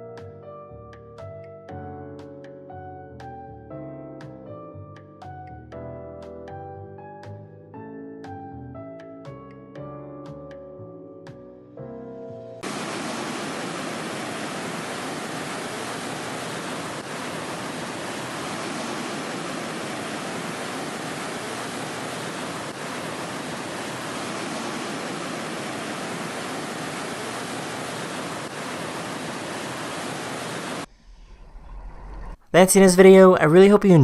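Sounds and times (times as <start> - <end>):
steady rushing noise: 12.6 - 32.4.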